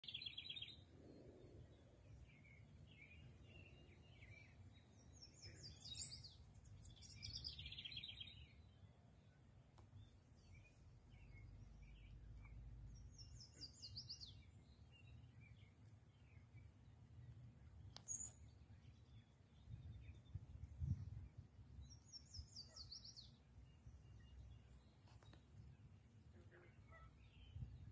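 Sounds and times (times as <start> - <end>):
bird chirps: 0.0 - 8.8, 10.0 - 16.7, 17.7 - 21.2, 21.8 - 27.9
songbirds trilling: 10.0 - 20.6, 21.4 - 27.9.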